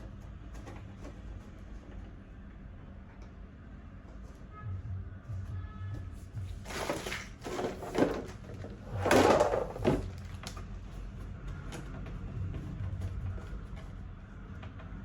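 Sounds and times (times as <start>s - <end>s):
plastic parts scraping and rattling: 0.0s - 2.2s, 6.4s - 15.0s.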